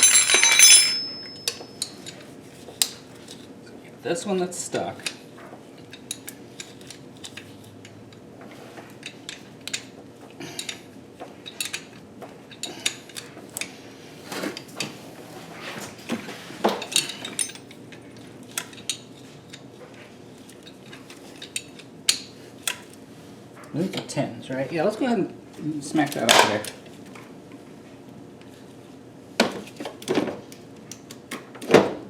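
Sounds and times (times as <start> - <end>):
metal hand tools clinking: 0.0 - 2.2, 16.8 - 17.7.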